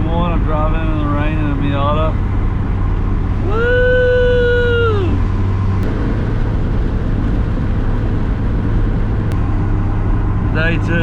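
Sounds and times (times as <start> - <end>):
in-cabin engine and road rumble: 0.0 - 11.0
person shouting woo: 3.4 - 5.2.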